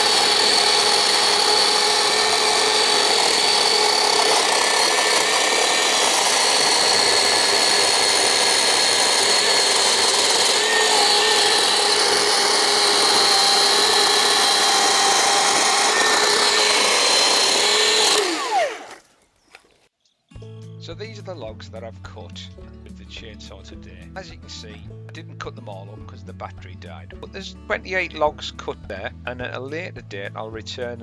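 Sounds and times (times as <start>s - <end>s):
electric chainsaw cutting log: 0.0s - 19.2s.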